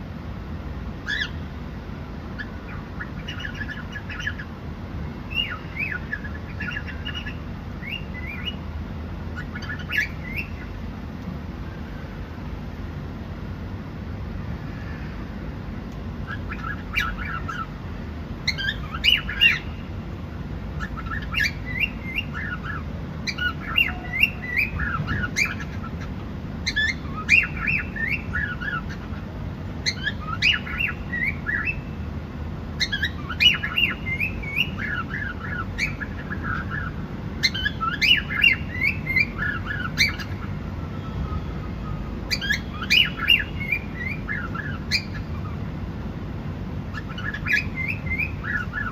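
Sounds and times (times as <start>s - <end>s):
cockatiel chirping: 1.0s - 1.4s, 2.4s - 4.5s, 5.3s - 8.6s, 9.4s - 10.7s, 16.3s - 17.7s, 18.4s - 19.8s, 20.8s - 29.2s, 29.8s - 32.0s, 32.8s - 40.5s, 42.3s - 45.6s, 46.9s - 48.9s.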